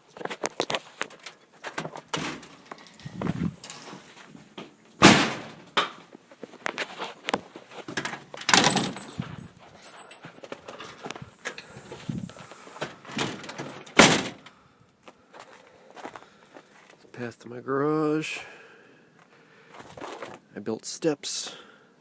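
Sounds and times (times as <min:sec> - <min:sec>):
heavy thumps: 0:02.1 - 0:05.6
thin high squeak: 0:08.7 - 0:10.6.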